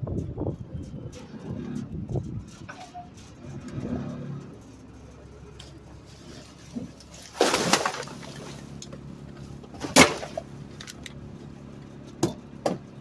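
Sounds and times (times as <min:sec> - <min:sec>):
garbage truck running: 0:00.0 - 0:13.0
trash crashing into hopper: 0:06.7 - 0:08.8, 0:09.7 - 0:10.5.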